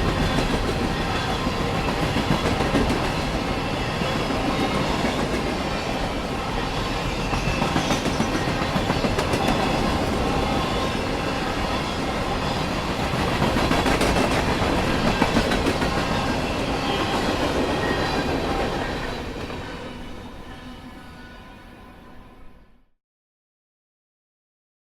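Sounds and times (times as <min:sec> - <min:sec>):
freight train rolling past: 0:00.0 - 0:22.8
train wheels clicking over rail joints: 0:13.1 - 0:17.4.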